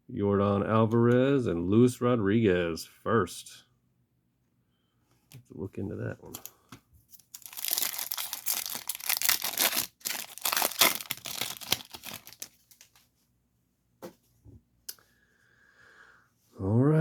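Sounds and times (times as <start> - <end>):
foil wrapper tearing and crinkling: 7.2 - 13.0.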